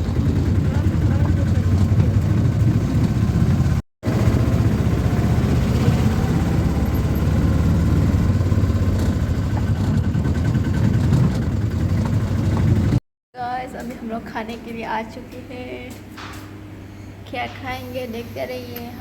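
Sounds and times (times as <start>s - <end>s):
vehicle engines rumbling: 0.0s - 19.0s.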